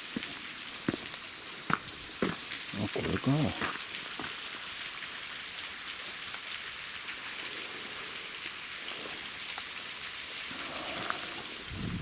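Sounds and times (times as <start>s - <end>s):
waterfall rushing: 10.5s - 12.0s.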